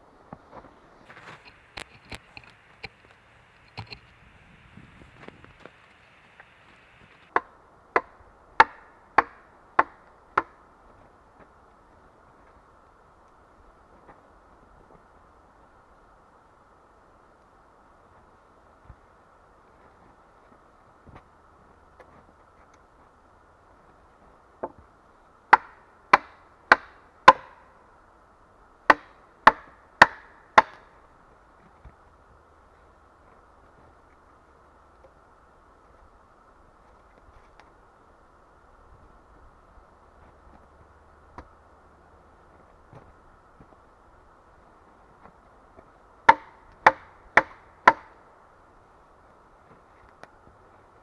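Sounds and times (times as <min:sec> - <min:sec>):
hand tool striking wood: 0:07.3 - 0:10.6, 0:25.5 - 0:27.6, 0:28.9 - 0:30.9, 0:46.3 - 0:48.2.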